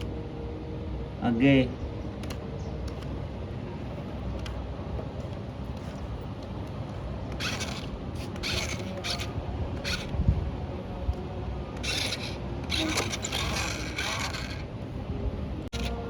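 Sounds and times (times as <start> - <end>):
short rasping scrapes: 7.3 - 10.1, 11.8 - 14.8
toy tractor motor humming: 7.3 - 10.4, 11.8 - 15.0, 15.7 - 16.0.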